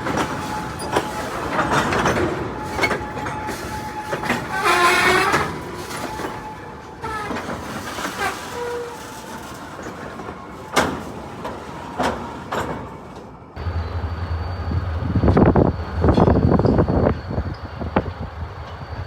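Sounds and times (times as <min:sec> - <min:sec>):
wheel squeals: 0:00.0 - 0:12.7
freight train cars rolling: 0:00.0 - 0:19.0.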